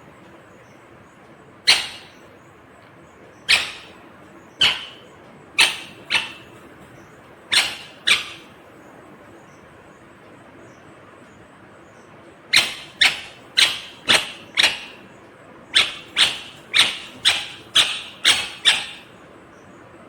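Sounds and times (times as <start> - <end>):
parrot screeching: 1.7 - 2.3, 3.5 - 4.0, 4.6 - 8.5, 12.5 - 15.1, 15.8 - 19.2.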